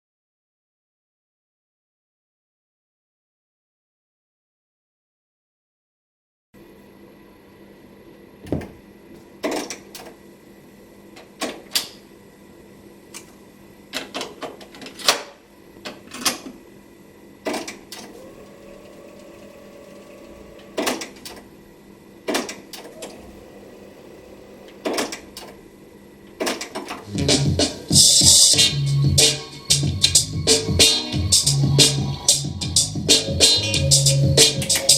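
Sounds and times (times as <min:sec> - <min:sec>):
tape mechanism whirring: 0:17.9 - 0:21.4.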